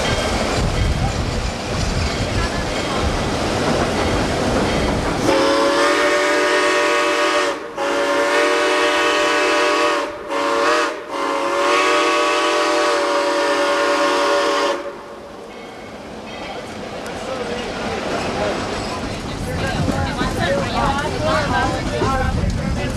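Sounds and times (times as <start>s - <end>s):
train running: 0.0s - 22.9s
steam locomotive whistle: 5.2s - 15.2s.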